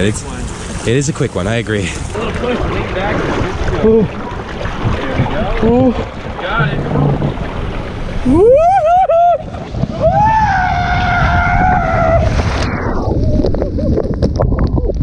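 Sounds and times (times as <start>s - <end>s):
water and wind rushing over mic: 0.0s - 15.0s
man screaming: 8.3s - 9.4s, 10.0s - 12.3s.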